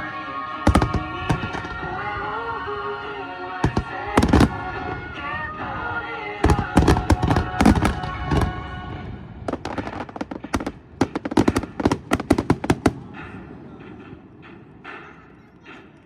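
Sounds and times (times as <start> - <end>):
fireworks bangs and cracks: 0.6 - 2.6, 3.6 - 14.5.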